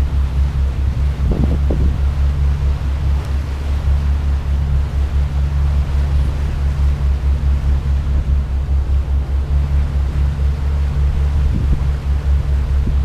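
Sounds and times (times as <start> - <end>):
boat engine droning: 0.0 - 13.0
wind and water hiss: 0.0 - 13.0.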